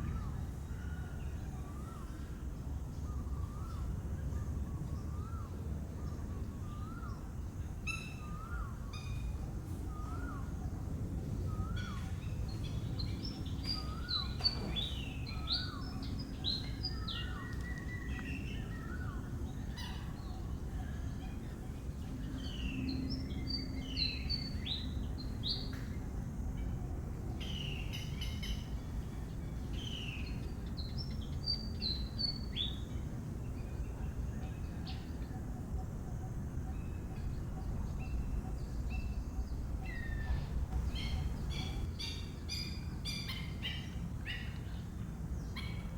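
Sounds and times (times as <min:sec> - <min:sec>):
birds chirping: 0:11.5 - 0:25.8, 0:27.4 - 0:45.9
steady low rumble: 0:32.8 - 0:43.3.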